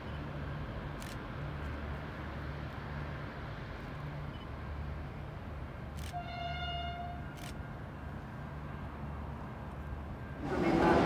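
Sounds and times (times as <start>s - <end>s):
diesel train rumble: 4.8s - 11.0s
train horn blast: 6.2s - 7.3s.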